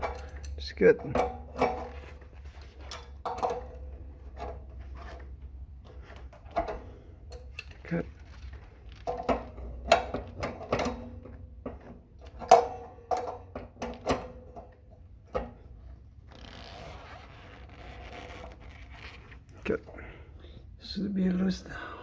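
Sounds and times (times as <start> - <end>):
tool clicking and knocking on metal: 0.0 - 2.0, 2.8 - 5.2, 9.0 - 15.6.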